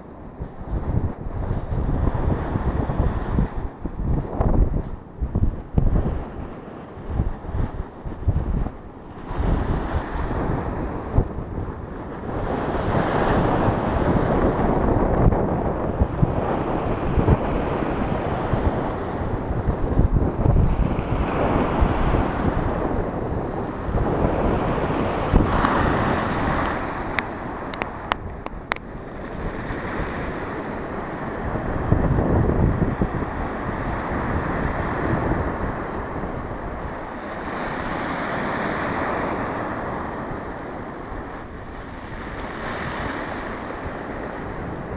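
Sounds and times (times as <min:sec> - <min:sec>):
sea waves breaking on shore: 0:00.0 - 0:44.9
wind buffeting microphone: 0:00.0 - 0:44.9.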